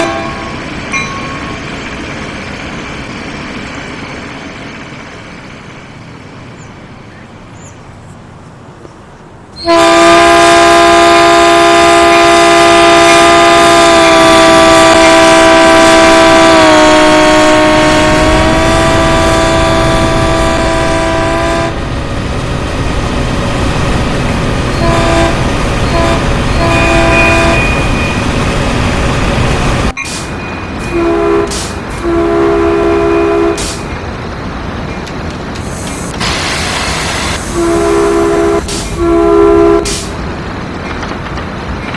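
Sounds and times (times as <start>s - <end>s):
train air horn blast: 0.0s - 0.5s, 9.6s - 21.8s, 24.8s - 27.9s, 30.9s - 33.8s, 37.2s - 40.1s
train rumbling by: 0.0s - 41.9s
short horn toots: 9.6s - 21.8s.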